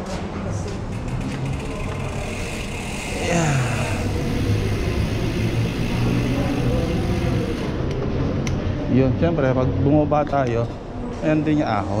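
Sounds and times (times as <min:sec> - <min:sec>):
bike tyre and wind noise: 0:00.9 - 0:08.2.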